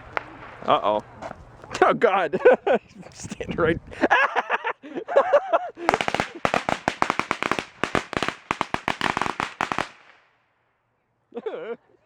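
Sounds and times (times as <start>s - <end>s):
firecrackers banging: 0.0s - 1.8s, 5.8s - 10.3s.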